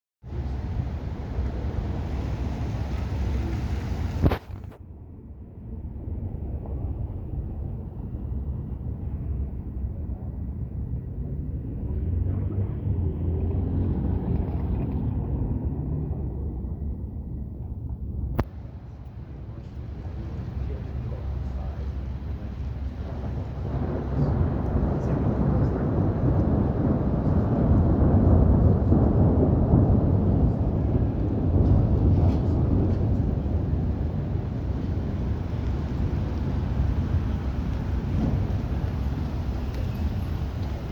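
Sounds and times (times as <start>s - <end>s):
rolling thunder rumble: 0.2s - 40.9s
wind on microphone: 0.2s - 40.9s
heavy rain: 0.3s - 4.8s, 18.4s - 40.9s.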